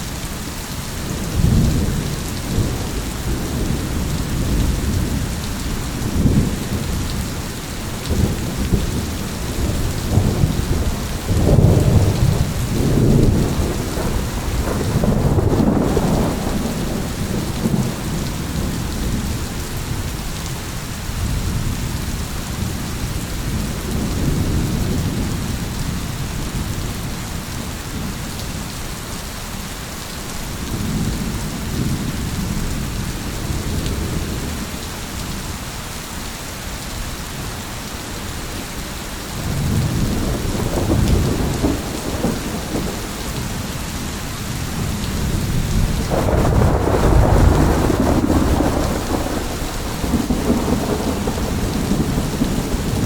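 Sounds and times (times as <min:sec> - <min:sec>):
heavy rain hissing: 0:00.0 - 0:53.0
rolling thunder: 0:01.1 - 0:20.2, 0:39.4 - 0:53.0.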